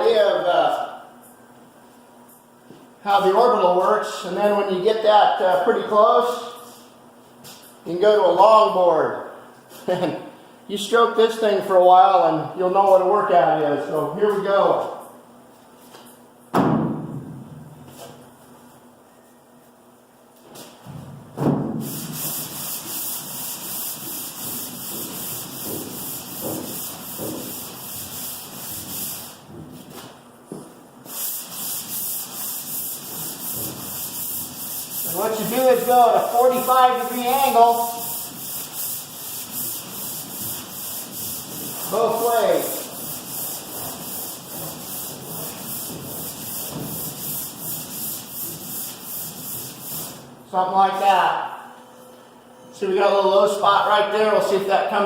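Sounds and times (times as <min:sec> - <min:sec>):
sandpaper rasping on steel: 0:21.8 - 0:29.4, 0:31.1 - 0:50.2.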